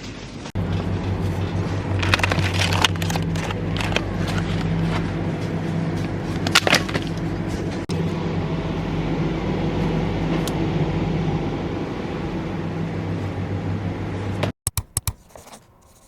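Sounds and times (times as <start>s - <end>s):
low mechanical hum: 0.0s - 14.5s.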